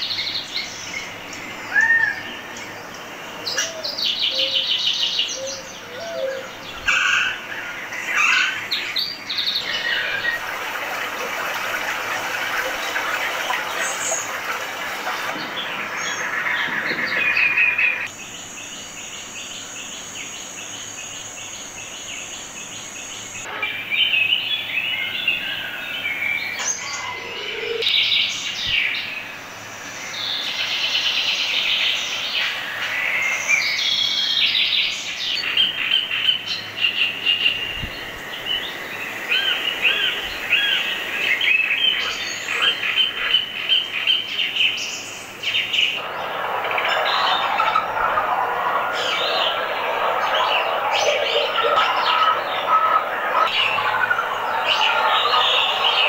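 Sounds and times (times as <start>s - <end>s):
birds calling and chirping: 0.0s - 56.0s
steady high whine: 45.0s - 56.0s.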